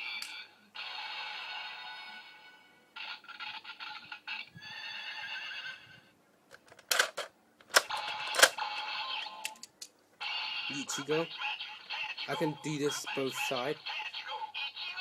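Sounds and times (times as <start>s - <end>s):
plastic clicks: 6.5s - 8.6s
toy electronic sound effects: 10.2s - 15.0s.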